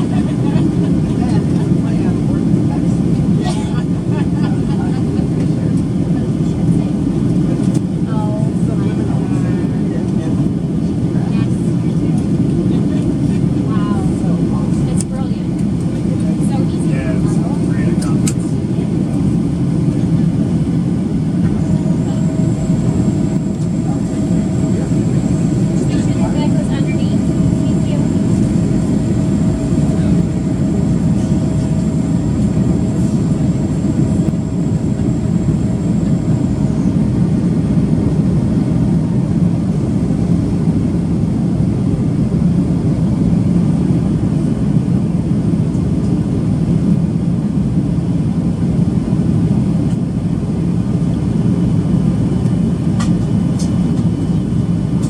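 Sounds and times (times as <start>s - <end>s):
jet engines in cabin: 0.0s - 55.0s.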